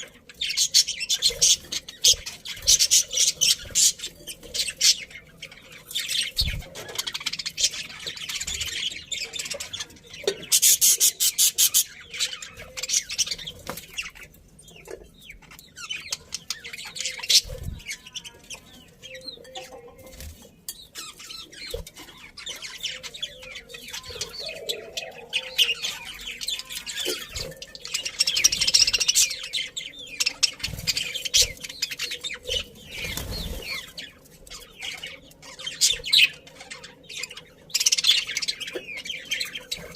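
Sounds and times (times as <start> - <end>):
budgerigars chirping: 0.4 - 19.9.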